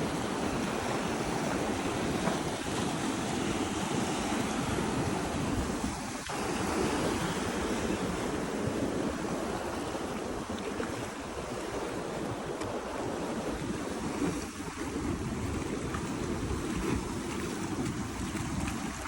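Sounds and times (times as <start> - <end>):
ocean waves washing: 0.0 - 19.0
wind rumbling on microphone: 0.0 - 19.0.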